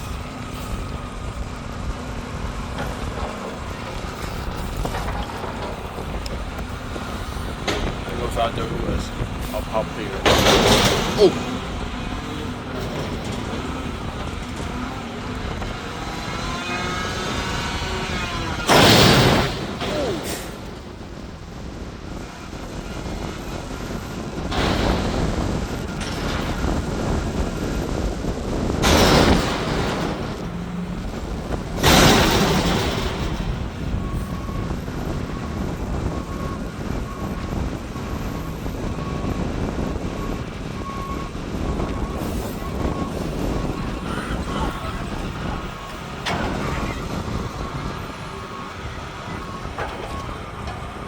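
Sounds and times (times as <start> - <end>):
garbage truck diesel engine rumble: 0.0 - 51.0
reversing alarm beeping: 4.3 - 21.1, 28.8 - 51.0
loud crash: 7.7 - 11.9, 18.1 - 20.8, 28.8 - 30.4, 31.8 - 33.7.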